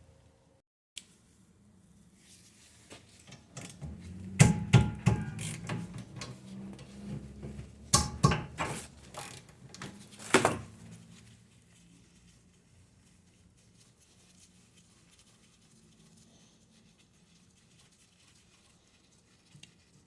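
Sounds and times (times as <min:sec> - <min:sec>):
brake parts clicking and rattling: 0:03.6 - 0:10.8.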